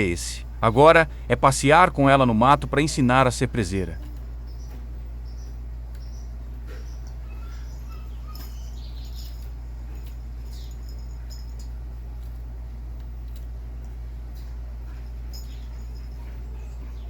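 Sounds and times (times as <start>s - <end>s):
steady low hum: 0.0s - 17.0s
small songbird chirping: 4.1s - 11.5s, 15.3s - 17.0s.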